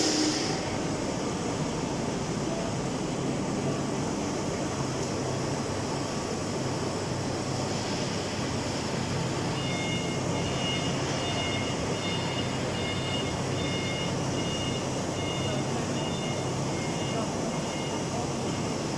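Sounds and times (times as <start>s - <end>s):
machinery humming: 0.0s - 18.9s
high electronic beeping: 9.5s - 18.7s.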